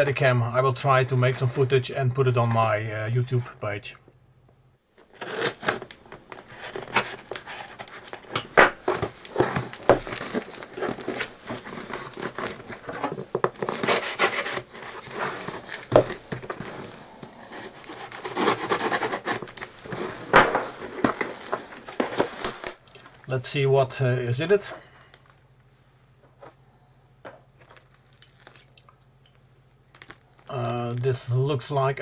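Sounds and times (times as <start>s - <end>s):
cardboard box rustling and crinkling: 5.0s - 23.2s.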